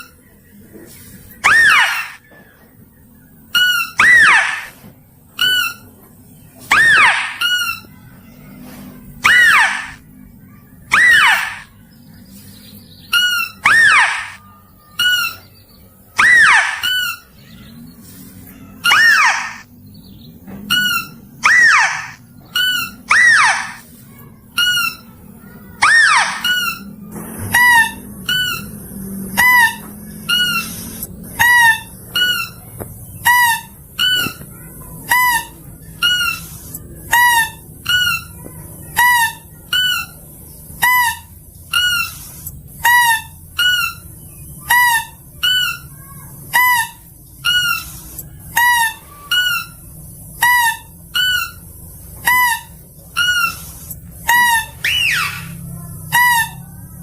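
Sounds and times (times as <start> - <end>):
mouse-deer calls: 6.7 - 7.9, 13.2 - 15.4, 16.2 - 19.6, 20.7 - 23.9, 24.6 - 32.6.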